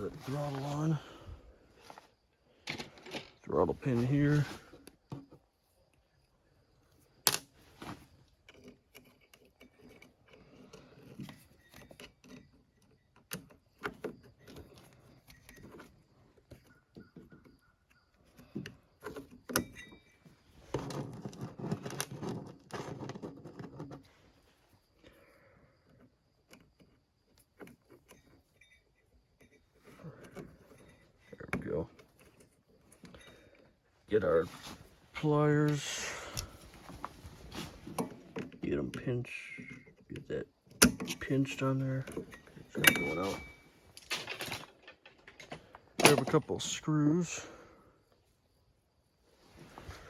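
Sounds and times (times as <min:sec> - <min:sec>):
rattling and rubbing: 0:00.0 - 0:01.1, 0:18.4 - 0:24.8
small metal parts clinking: 0:02.6 - 0:03.5, 0:40.7 - 0:47.4.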